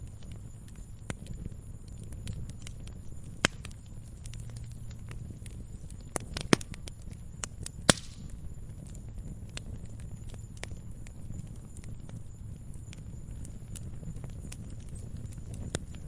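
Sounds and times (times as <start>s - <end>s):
sharp fire pops: 0.0s - 16.0s
wood fire crackling: 0.0s - 16.0s.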